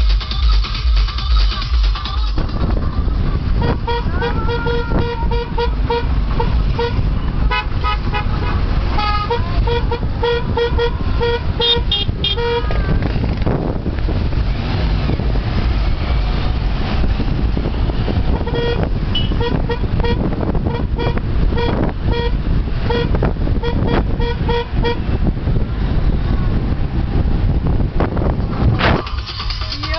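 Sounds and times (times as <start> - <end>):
road traffic rumble: 0.0 - 29.9
wind: 0.0 - 29.9
vehicle horns beeping: 3.5 - 12.9, 18.2 - 25.3.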